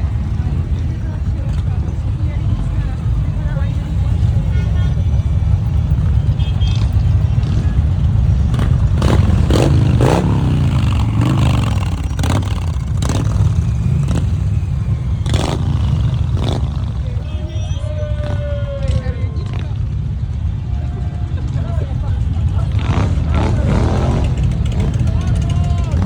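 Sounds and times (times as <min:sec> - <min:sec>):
motorcycle engine revving: 0:00.0 - 0:17.4, 0:22.2 - 0:26.0.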